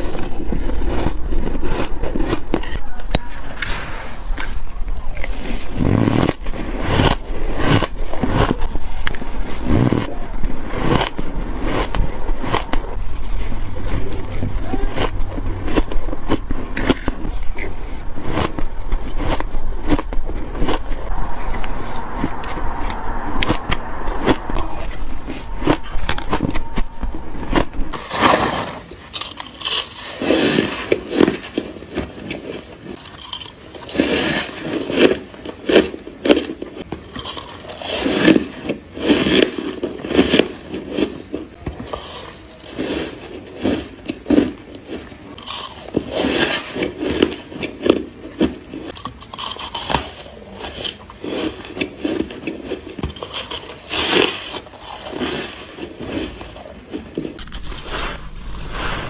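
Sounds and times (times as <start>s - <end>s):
steady low hum: 0.0s - 33.4s, 55.6s - 59.0s
ice crunching as bitten: 0.0s - 59.0s.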